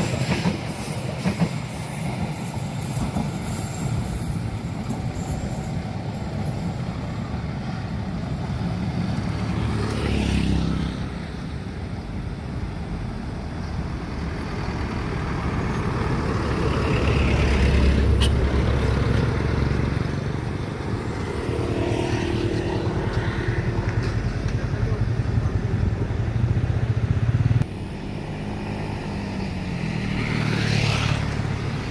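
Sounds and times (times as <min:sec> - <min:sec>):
vehicles driving past: 0:08.5 - 0:31.9.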